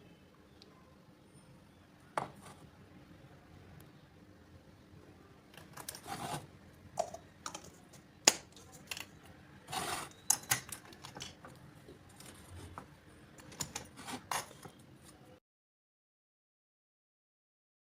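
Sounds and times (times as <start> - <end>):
small objects scraping: 5.6 - 6.5, 7.5 - 11.4, 12.1 - 14.8.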